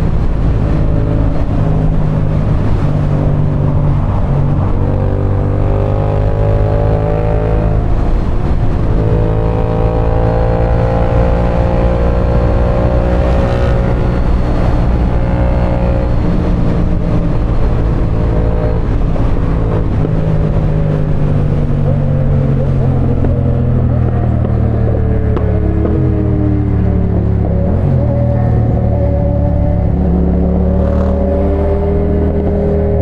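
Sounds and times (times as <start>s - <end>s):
motorcycle engine running: 6.4s - 20.4s.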